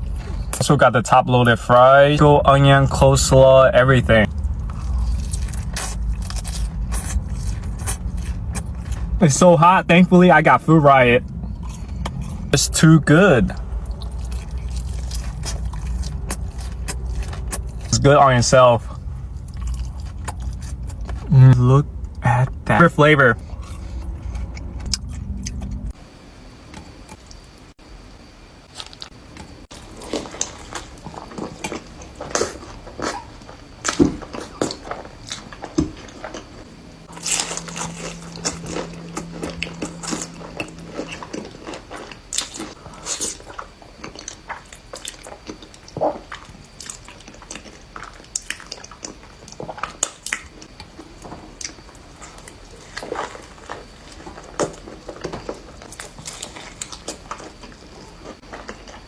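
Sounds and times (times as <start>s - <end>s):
chewing and crunching: 0.0s - 0.7s, 4.0s - 26.0s, 28.7s - 59.0s
low steady hum: 0.0s - 59.0s
wet squishy mouth sounds: 4.2s - 9.2s, 11.3s - 21.4s.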